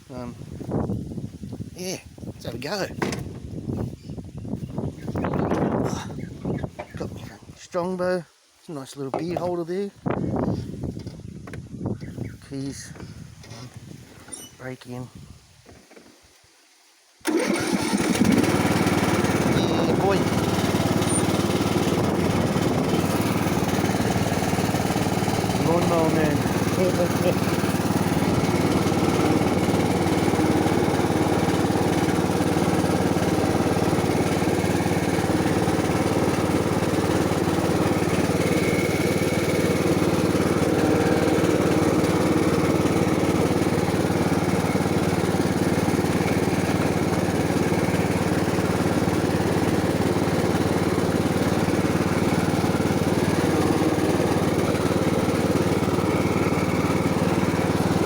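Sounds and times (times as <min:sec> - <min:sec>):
lawn mower engine running: 0:17.2 - 0:58.0.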